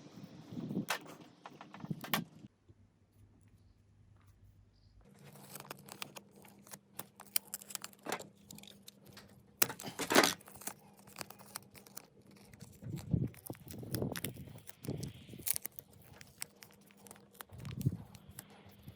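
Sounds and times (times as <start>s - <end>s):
adhesive tape crackling off roll: 5.2s - 18.9s.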